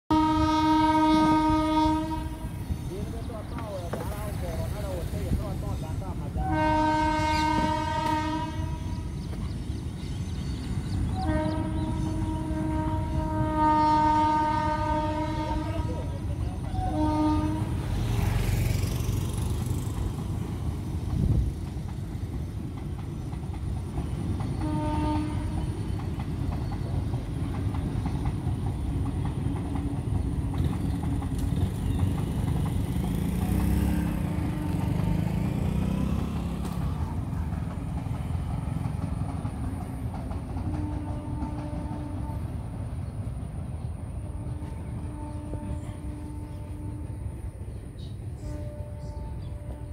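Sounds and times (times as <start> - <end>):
train horn blasts: 0.1 - 2.8, 6.4 - 9.2, 11.1 - 18.4, 24.6 - 25.8, 33.1 - 37.5, 40.6 - 42.8, 44.2 - 47.5, 48.4 - 49.9
distant train rumble: 0.1 - 49.9.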